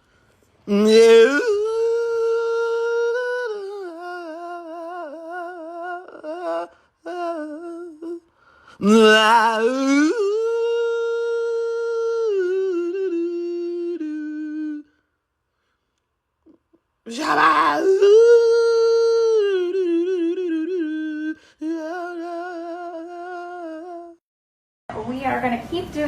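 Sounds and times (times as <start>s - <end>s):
long howls: 17.1s - 24.2s.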